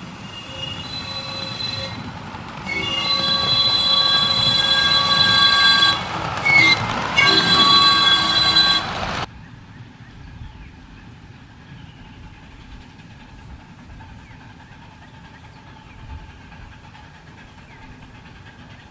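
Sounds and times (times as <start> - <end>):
steam locomotive whistle: 0.0 - 9.3.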